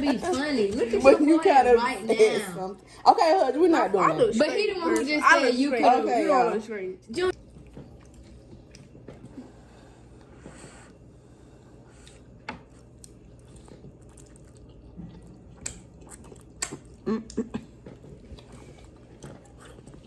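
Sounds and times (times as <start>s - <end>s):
wet chewing mouth sounds: 11.9s - 20.0s.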